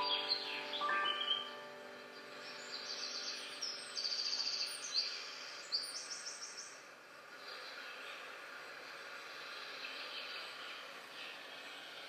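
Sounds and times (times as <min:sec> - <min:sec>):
songbird trilling: 0:00.0 - 0:01.6
faint outdoor hiss: 0:00.0 - 0:12.0.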